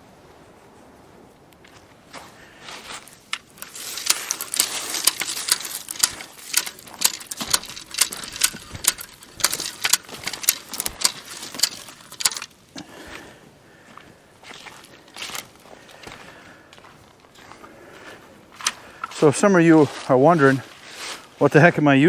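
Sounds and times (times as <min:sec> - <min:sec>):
marking wheel clicking on log: 0:03.2 - 0:12.6.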